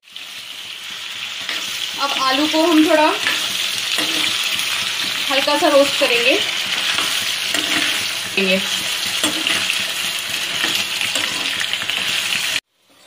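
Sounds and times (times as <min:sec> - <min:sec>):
potatoes sizzling in hot oil: 0:00.0 - 0:13.0
metal spoon stirring: 0:03.2 - 0:13.0.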